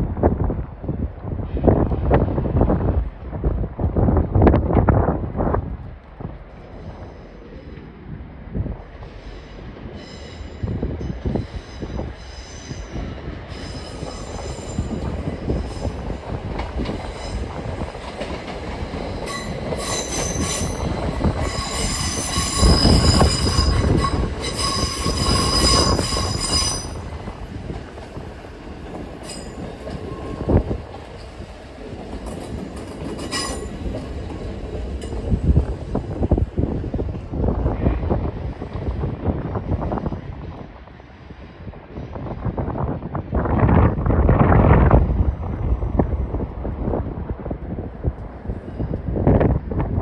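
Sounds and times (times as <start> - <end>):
train rumble: 0.0 - 50.0
train wheels squealing: 9.0 - 16.2, 17.0 - 17.6, 18.9 - 27.2, 29.2 - 31.3, 32.2 - 34.2.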